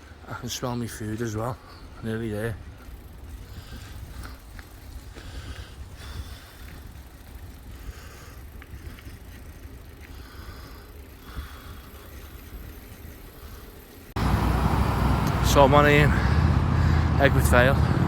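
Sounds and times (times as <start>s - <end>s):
tyres rolling on path: 0.0s - 18.0s
bike clicks and rattles: 1.0s - 14.2s.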